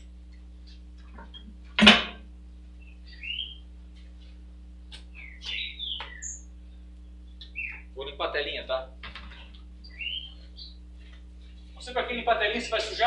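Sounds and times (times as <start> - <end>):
bird chirping: 2.8 - 3.7, 5.1 - 8.0, 9.4 - 10.8.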